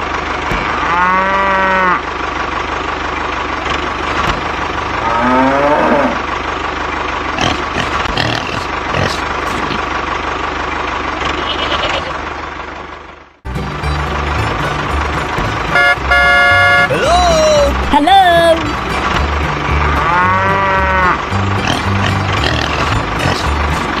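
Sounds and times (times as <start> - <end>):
cow mooing: 0.5 - 2.1, 5.0 - 6.3, 19.7 - 23.5.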